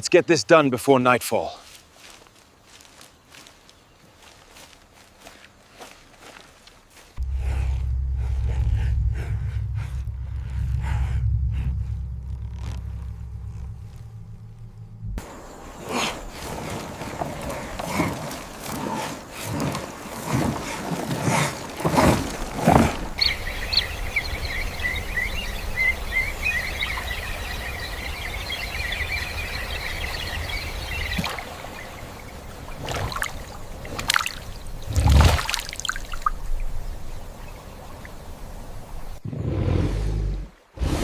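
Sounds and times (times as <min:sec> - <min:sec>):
birds chirping: 0:02.1 - 0:06.4, 0:07.2 - 0:19.0, 0:22.6 - 0:39.2
brief rushing sounds: 0:07.2 - 0:15.2
loud thump: 0:07.2 - 0:15.2
low rumble: 0:07.2 - 0:15.4.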